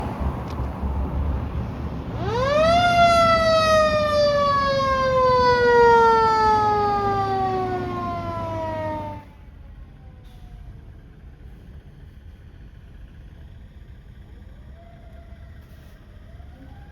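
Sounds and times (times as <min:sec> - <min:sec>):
low rumble of truck: 0:00.0 - 0:16.9
fire truck siren wailing: 0:01.9 - 0:11.0, 0:14.2 - 0:16.9.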